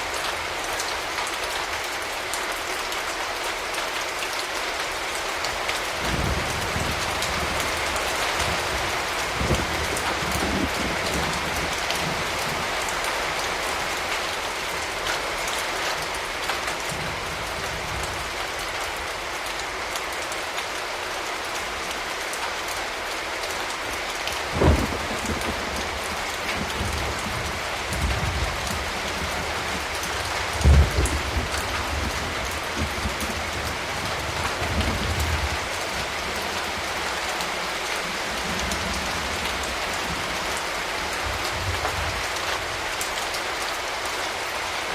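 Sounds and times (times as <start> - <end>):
rain pattering on surfaces: 0.0 - 44.9
distant thunder thuds and rumbling: 6.0 - 12.7, 24.5 - 36.4.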